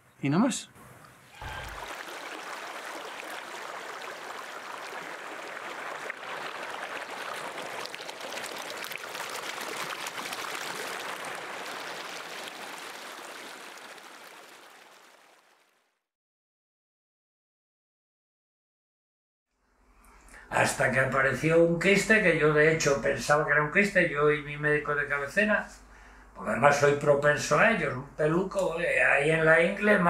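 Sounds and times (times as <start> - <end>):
river water rushing: 1.4 - 15.3.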